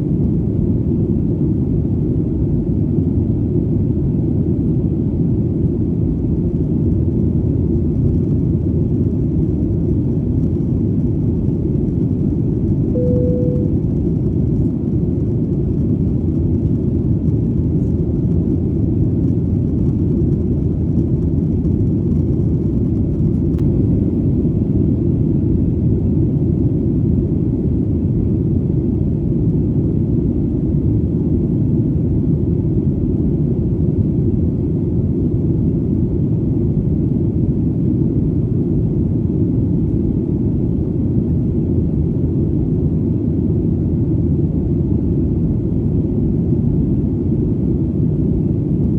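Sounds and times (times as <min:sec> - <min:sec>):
airplane engine rumble: 0:00.0 - 0:48.9
short single tone: 0:12.9 - 0:14.1.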